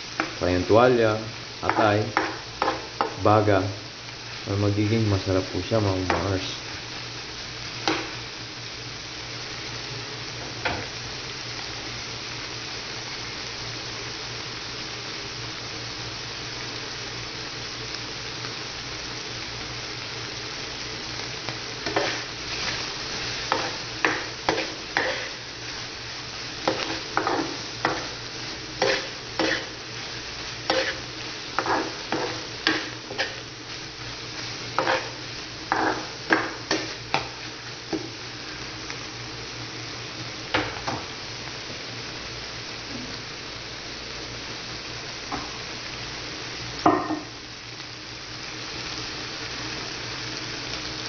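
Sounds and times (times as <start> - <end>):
meat sizzling in a frying pan: 0.0 - 51.0
spatula scraping a pan: 21.8 - 25.4, 26.6 - 28.2, 28.8 - 33.4, 34.8 - 38.0.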